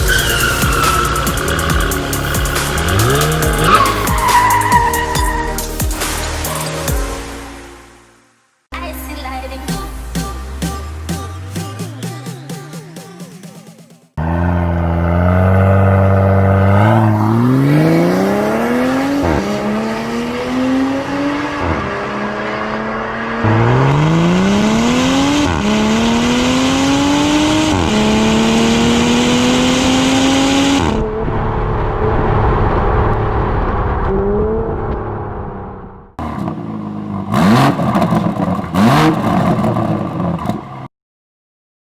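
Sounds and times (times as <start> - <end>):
car engine accelerating hard: 0.0 - 6.2, 14.2 - 40.9
engine revving in quick blips: 0.0 - 6.5, 14.2 - 40.8.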